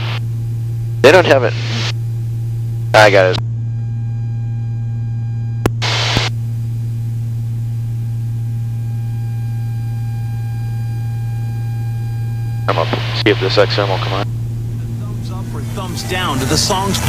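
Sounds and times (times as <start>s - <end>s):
radio hiss: 1.0s - 1.9s, 5.8s - 6.3s, 12.7s - 14.3s
aircraft engines droning: 12.5s - 17.0s.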